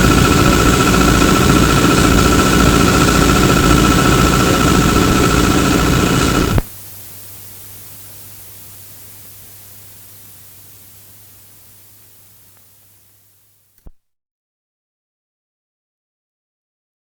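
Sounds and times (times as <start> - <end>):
trolleybus cabin rumble and whine: 0.0 - 6.6
tape hiss: 0.0 - 13.9
low mains hum: 0.0 - 14.0.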